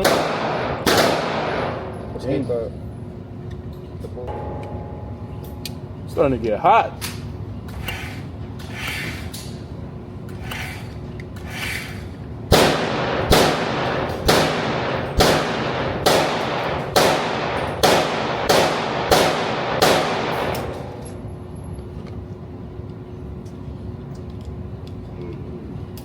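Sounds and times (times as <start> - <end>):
rapid gunshots with echo: 0.0 - 1.9, 12.5 - 21.0.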